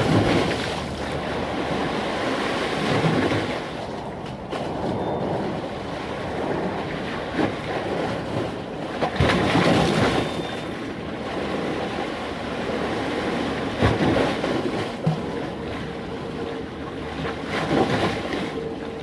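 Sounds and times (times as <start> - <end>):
sea waves surf rush: 0.0 - 19.0
wind buffeting microphone: 0.0 - 19.0.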